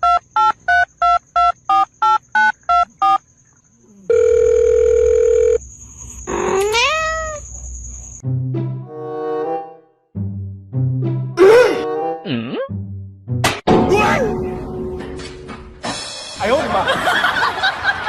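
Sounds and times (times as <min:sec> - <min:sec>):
telephone keypad beeps: 0:00.0 - 0:03.2
cat meowing: 0:06.3 - 0:07.5.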